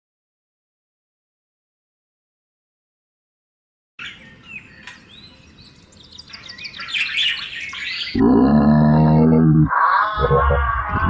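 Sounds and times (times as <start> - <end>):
birds chirping and trilling: 4.0 - 11.0
low drawn-out animal call: 8.1 - 11.0.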